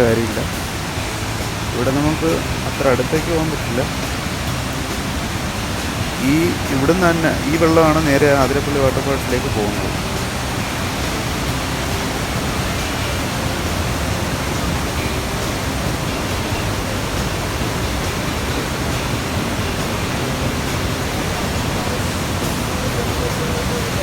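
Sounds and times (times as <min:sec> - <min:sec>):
waterfall rushing over rocks: 0:00.0 - 0:24.0.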